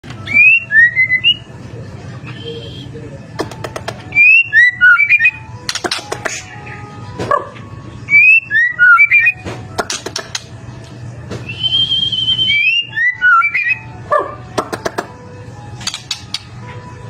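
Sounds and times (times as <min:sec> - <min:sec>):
bird whistled song: 0:00.2 - 0:01.5, 0:02.2 - 0:03.0, 0:04.1 - 0:06.9, 0:08.0 - 0:09.4, 0:11.4 - 0:13.9
sharp bird clicks: 0:05.7 - 0:06.5, 0:15.8 - 0:16.6.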